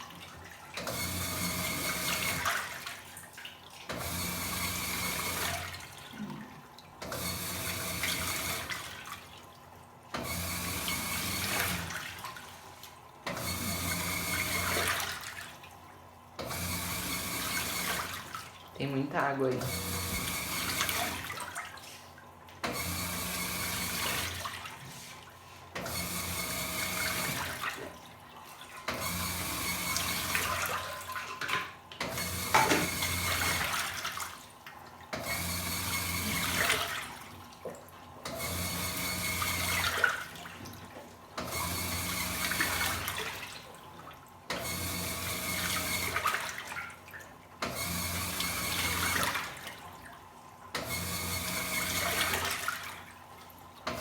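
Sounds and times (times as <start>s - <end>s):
washing machine motor hum: 0.0s - 54.0s
water sloshing: 39.8s - 41.4s.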